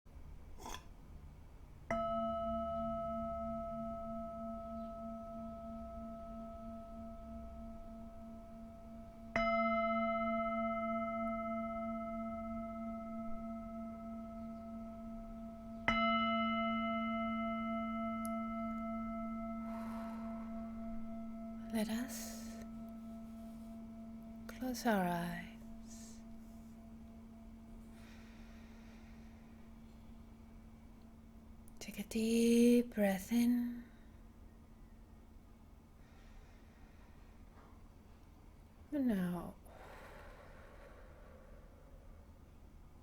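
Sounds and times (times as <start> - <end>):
singing bowl ringing: 1.9 - 31.8.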